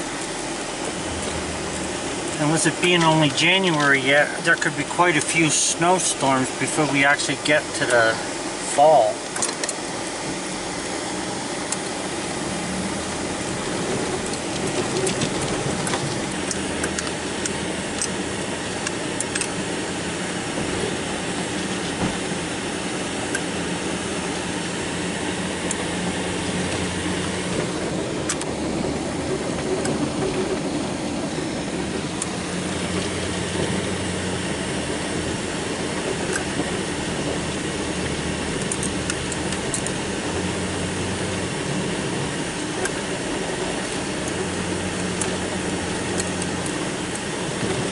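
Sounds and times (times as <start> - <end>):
snow plow engine running: 0.0 - 47.9.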